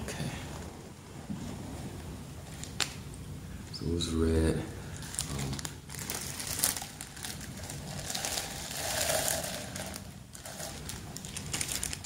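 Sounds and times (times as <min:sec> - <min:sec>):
fabric rustling and crinkling: 0:05.0 - 0:12.0.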